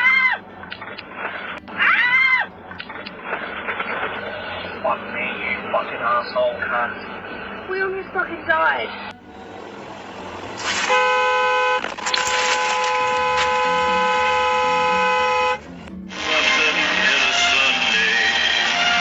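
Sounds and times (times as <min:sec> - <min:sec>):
loud rush of noise: 0:09.3 - 0:15.0, 0:15.6 - 0:19.0
car horn honking: 0:10.6 - 0:19.0.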